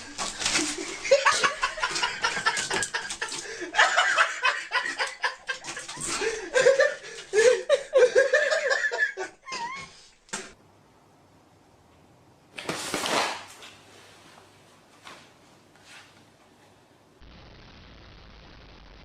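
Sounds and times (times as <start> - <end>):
human laughter in short bursts: 0.6 - 10.0.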